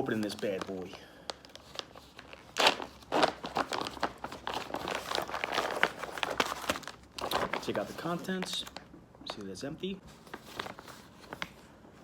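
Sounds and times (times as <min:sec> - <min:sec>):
plastic pouch ripping: 0:00.0 - 0:08.8
plastic crackling and rustling: 0:00.0 - 0:11.7.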